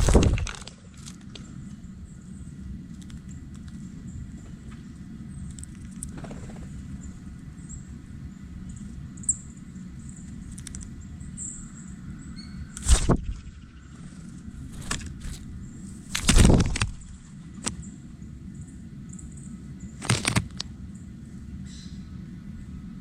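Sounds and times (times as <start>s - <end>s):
low outdoor rumble: 0.0s - 23.0s
faint bird chirps: 6.5s - 14.5s, 20.9s - 22.2s.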